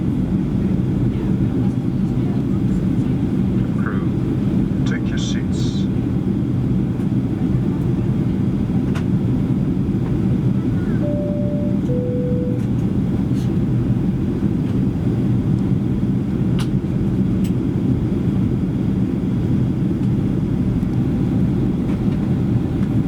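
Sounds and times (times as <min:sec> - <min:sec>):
airliner cabin rumble: 0:00.0 - 0:23.0
two-tone cabin chime: 0:11.0 - 0:13.0.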